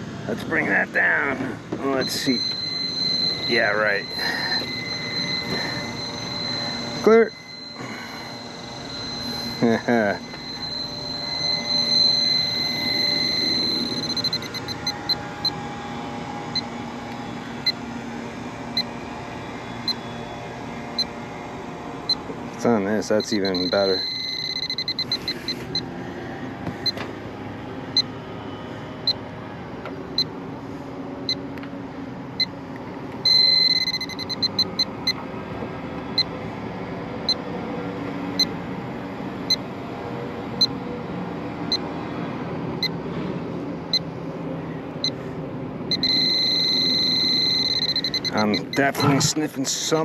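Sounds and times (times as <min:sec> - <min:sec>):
steady machine hum: 0:00.0 - 0:50.0
leak detector beeping: 0:01.1 - 0:15.7, 0:16.5 - 0:16.8, 0:18.7 - 0:19.0, 0:19.8 - 0:20.1, 0:21.0 - 0:21.2, 0:22.1 - 0:25.9, 0:26.7 - 0:27.0, 0:27.9 - 0:28.1, 0:31.2 - 0:31.5, 0:32.4 - 0:32.6, 0:33.2 - 0:35.2, 0:36.1 - 0:36.4, 0:38.3 - 0:38.6, 0:45.9 - 0:49.4.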